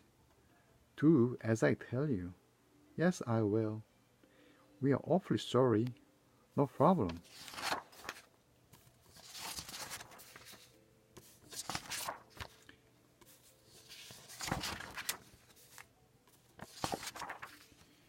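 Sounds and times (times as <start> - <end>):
book pages rustling: 7.0 - 18.0.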